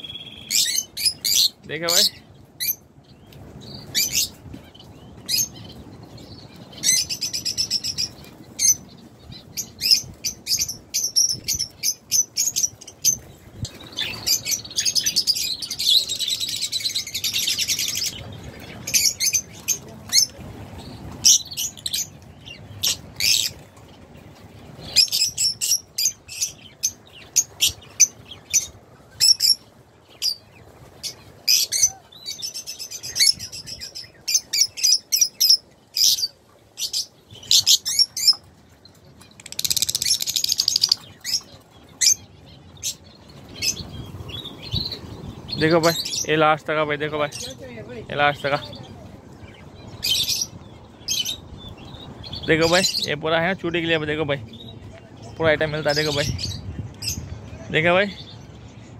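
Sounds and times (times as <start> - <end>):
birds chirping: 0.0 - 58.9.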